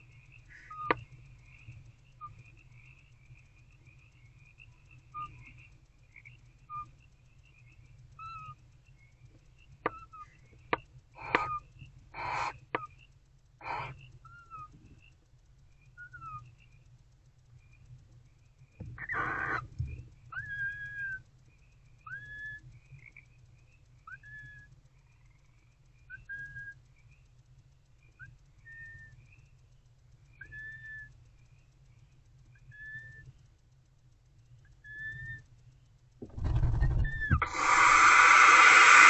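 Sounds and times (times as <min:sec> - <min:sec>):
owlets giving whistled calls: 0:00.4 - 0:01.0, 0:06.6 - 0:06.9, 0:08.2 - 0:08.6, 0:11.2 - 0:13.0, 0:13.6 - 0:14.7, 0:16.0 - 0:16.5, 0:19.0 - 0:19.7, 0:20.3 - 0:21.3, 0:22.0 - 0:22.7, 0:24.1 - 0:24.8, 0:26.1 - 0:26.8, 0:28.2 - 0:29.2, 0:30.4 - 0:31.2, 0:32.6 - 0:33.3, 0:34.7 - 0:35.5, 0:36.9 - 0:39.0.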